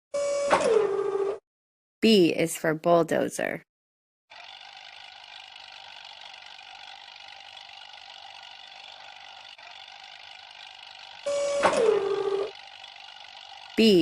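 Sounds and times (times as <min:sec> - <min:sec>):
bulldozer engine running: 0:04.3 - 0:14.0.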